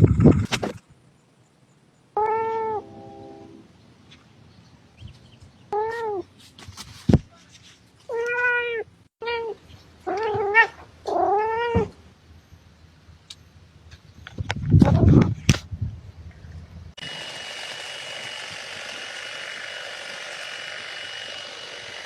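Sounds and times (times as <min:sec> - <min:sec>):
cat meowing: 0:02.2 - 0:02.9, 0:08.1 - 0:11.9.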